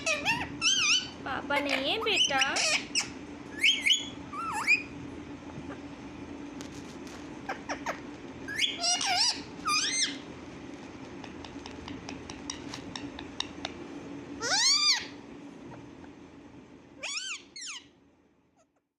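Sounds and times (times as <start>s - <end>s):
parrot squawking: 0.0s - 5.0s, 7.5s - 10.3s, 14.4s - 15.2s, 17.0s - 17.9s.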